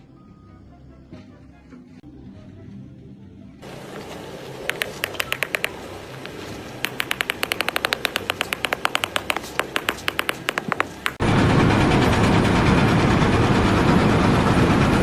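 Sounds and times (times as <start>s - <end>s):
rapid sharp clicks: 4.7s - 11.2s.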